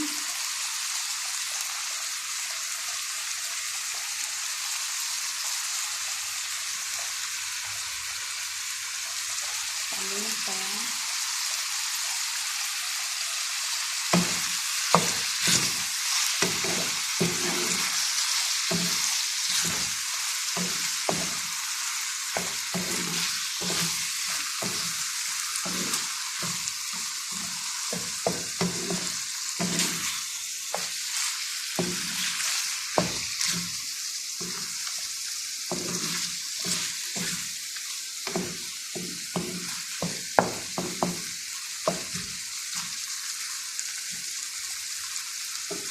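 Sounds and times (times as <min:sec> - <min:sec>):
chicken sizzling in a pan: 0:00.0 - 0:45.9
spatula scraping a pan: 0:14.1 - 0:33.8, 0:34.4 - 0:37.6, 0:38.2 - 0:41.3.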